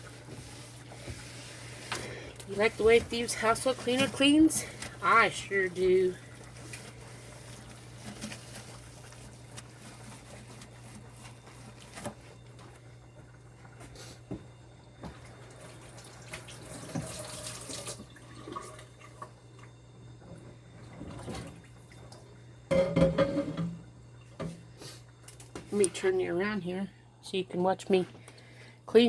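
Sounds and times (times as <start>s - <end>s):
water running or splashing: 0.0s - 14.2s, 14.8s - 22.4s.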